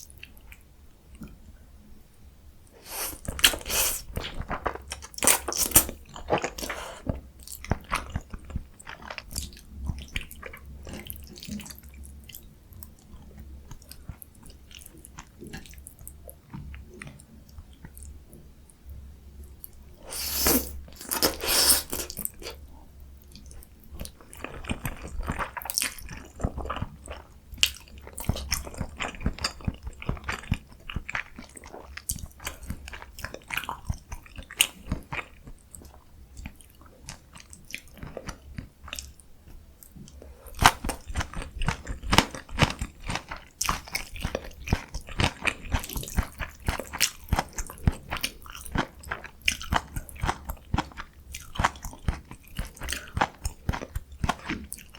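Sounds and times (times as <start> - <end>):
person chewing crunchy food: 2.8 - 11.8, 20.0 - 22.6, 23.3 - 54.9.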